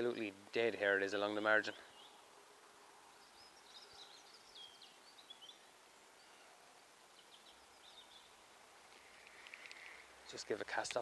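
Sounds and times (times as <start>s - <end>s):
faint songbird chirping: 0.0s - 11.0s.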